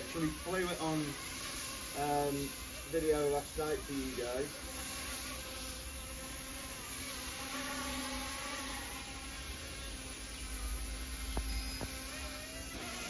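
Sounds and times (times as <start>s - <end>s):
rc helicopter rotor buzzing whine: 0.0s - 13.0s.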